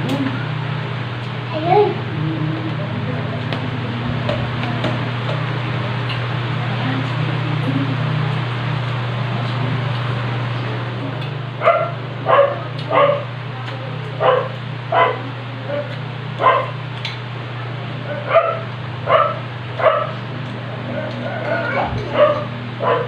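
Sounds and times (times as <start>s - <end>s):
steady low hum: 0.0s - 23.0s
dog barking: 11.6s - 13.3s, 14.2s - 16.8s, 18.0s - 20.2s, 20.9s - 23.0s.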